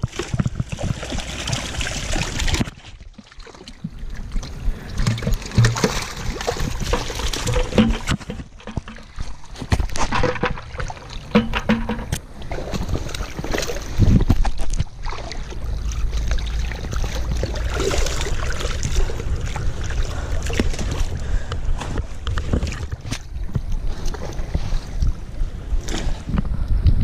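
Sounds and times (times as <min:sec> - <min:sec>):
wind rumbling on microphone: 0:00.0 - 0:02.8, 0:03.8 - 0:27.0
water sloshing and splashing: 0:00.0 - 0:26.5.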